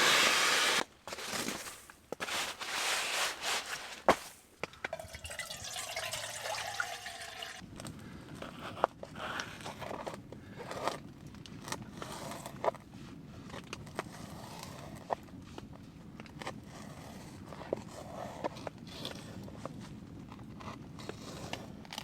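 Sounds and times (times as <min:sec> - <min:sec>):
water trickling: 0:04.7 - 0:07.6.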